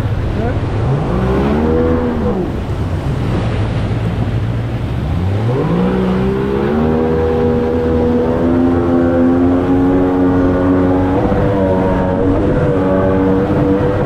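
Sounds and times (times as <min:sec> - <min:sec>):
boat jet motor: 0:00.0 - 0:14.0
water rushing: 0:00.0 - 0:14.0.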